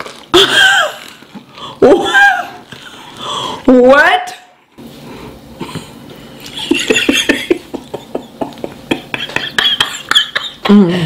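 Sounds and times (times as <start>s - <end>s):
crunching fried chicken: 0.0s - 1.6s.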